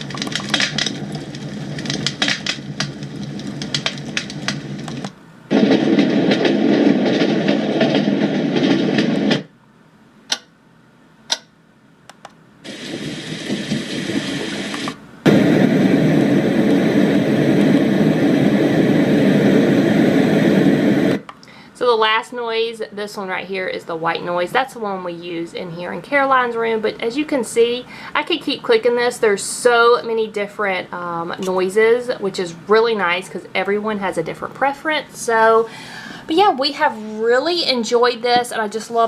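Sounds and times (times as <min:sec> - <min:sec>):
crackling fire sound from speaker: 0:00.0 - 0:09.6, 0:12.6 - 0:21.3
steady noise tracks: 0:00.0 - 0:09.6, 0:12.1 - 0:35.6
white noise: 0:00.0 - 0:39.0
clicks: 0:12.1 - 0:12.4.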